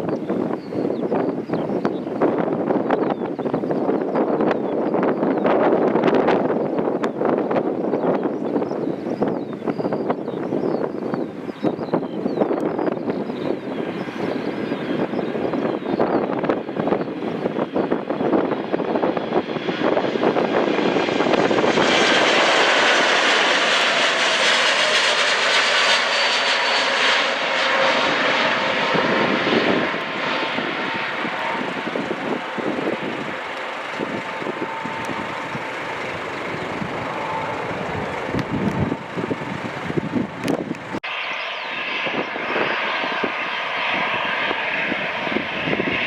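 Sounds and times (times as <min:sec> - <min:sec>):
jet engines passing: 0:00.0 - 0:46.0.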